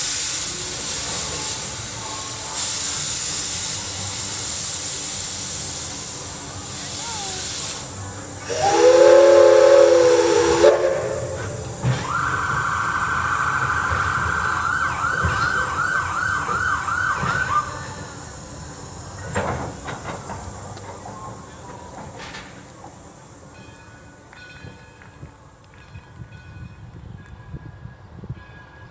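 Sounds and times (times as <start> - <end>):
steam hissing: 0.0 - 24.0
steam locomotive whistle: 7.2 - 18.0.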